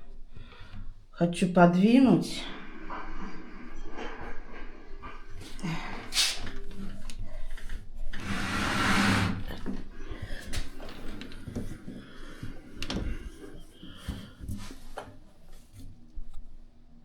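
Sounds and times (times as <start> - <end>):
washing machine scraping floor: 2.5 - 16.0.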